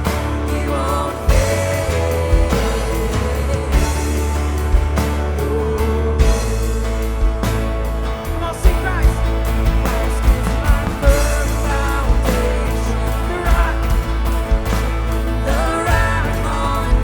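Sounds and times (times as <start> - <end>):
live worship band music: 0.0 - 17.0.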